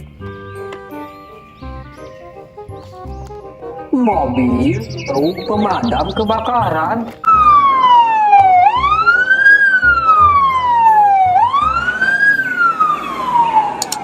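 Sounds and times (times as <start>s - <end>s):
fire truck siren wailing: 7.2s - 14.0s.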